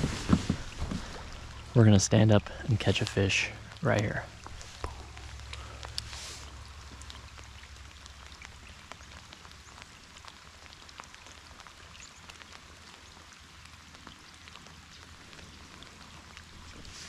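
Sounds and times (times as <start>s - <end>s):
faint low rumble: 0.0s - 11.7s
light rain drops ticking: 0.0s - 17.0s.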